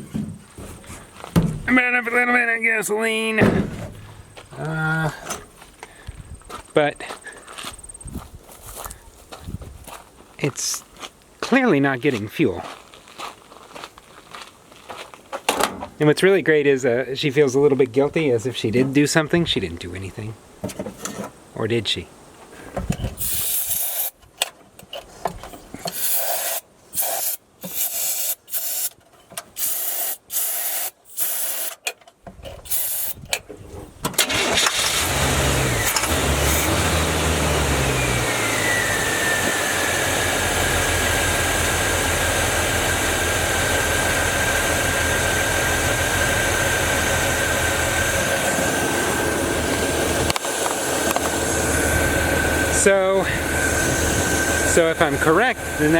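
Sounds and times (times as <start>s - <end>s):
truck engine running: 3.4s - 5.1s, 34.3s - 55.9s
truck engine cranking: 34.0s - 55.9s
high engine whine: 34.3s - 55.9s.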